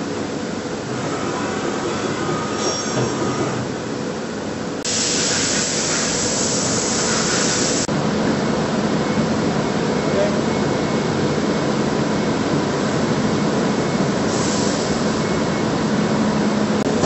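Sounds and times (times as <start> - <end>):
machining centre running: 0.0 - 17.0
loud hiss: 4.8 - 7.9.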